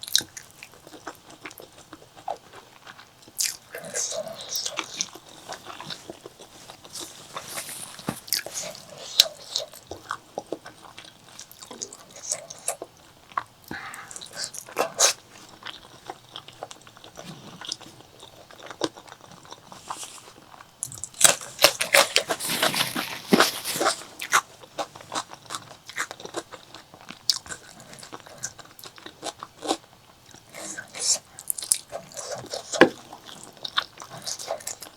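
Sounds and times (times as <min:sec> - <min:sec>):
wet chewing: 0:00.0 - 0:34.9
lip smacks: 0:13.7 - 0:15.2.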